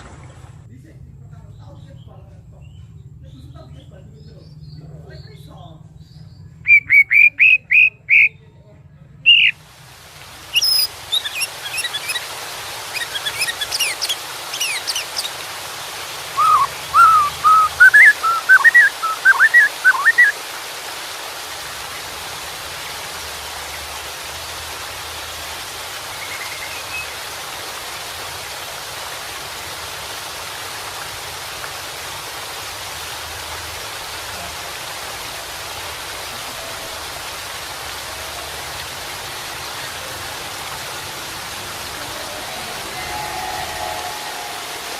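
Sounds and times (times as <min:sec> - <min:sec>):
rushing water: 0:00.0 - 0:00.7, 0:06.6 - 0:08.3, 0:09.3 - 0:44.9
bird singing: 0:01.3 - 0:08.5, 0:09.2 - 0:09.6, 0:10.5 - 0:12.3, 0:12.9 - 0:15.4, 0:16.4 - 0:20.4, 0:26.1 - 0:27.2.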